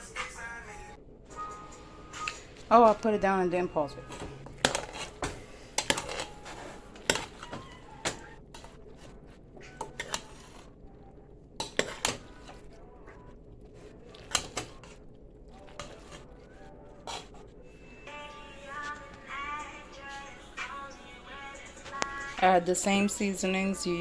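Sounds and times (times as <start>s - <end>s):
kitchen utensils clinking: 1.3s - 19.5s.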